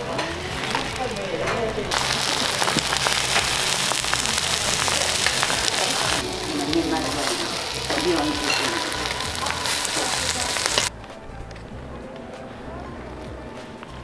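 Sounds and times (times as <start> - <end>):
food sizzling on a griddle: 0.0 - 10.9.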